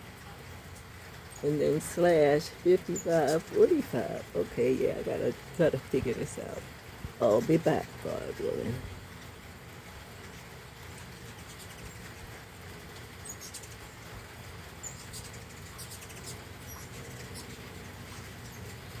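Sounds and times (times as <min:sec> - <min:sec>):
steady rain: 0:00.0 - 0:19.0
hummingbird chirps: 0:00.7 - 0:09.0, 0:11.0 - 0:12.4, 0:13.1 - 0:14.1, 0:14.8 - 0:19.0.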